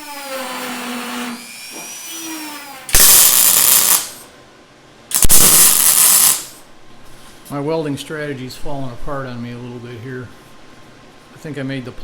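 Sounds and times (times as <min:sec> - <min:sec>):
mig welding bursts: 0:02.9 - 0:04.3, 0:05.1 - 0:06.6.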